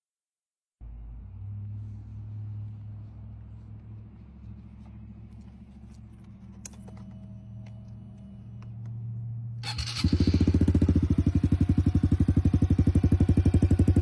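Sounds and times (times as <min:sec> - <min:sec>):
motorcycle engine idling: 0:09.6 - 0:14.0.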